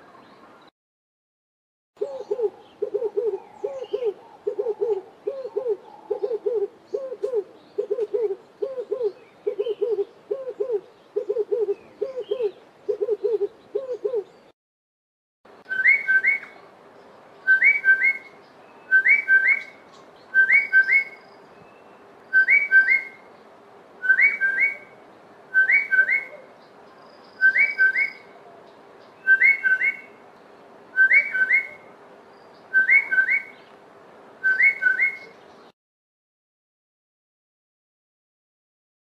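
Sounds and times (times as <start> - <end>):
bird whistling paired notes: 15.7 - 16.6, 32.7 - 33.6, 34.4 - 35.4.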